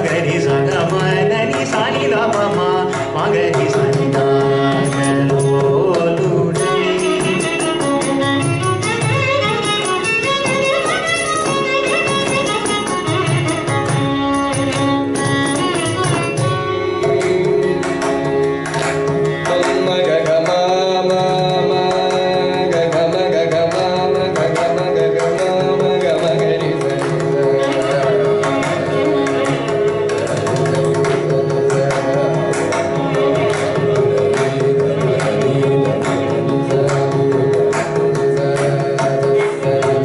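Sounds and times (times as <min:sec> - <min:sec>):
person singing: 0:00.0 - 0:08.4, 0:16.9 - 0:40.0
mridangam drumming: 0:00.0 - 0:40.0
violin: 0:00.0 - 0:40.0.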